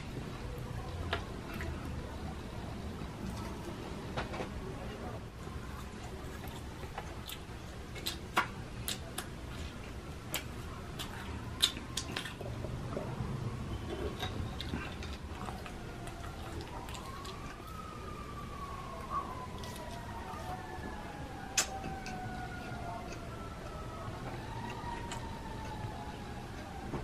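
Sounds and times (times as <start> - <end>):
chewing and crunching food: 0.0 - 3.8, 5.3 - 27.0
distant siren: 9.9 - 27.0.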